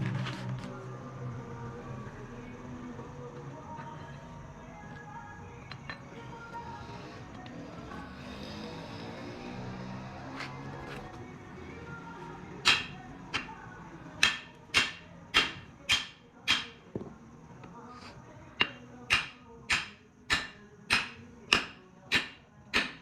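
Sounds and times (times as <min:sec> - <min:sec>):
hammer striking metal: 0:12.6 - 0:13.5, 0:14.2 - 0:16.8, 0:18.6 - 0:23.0.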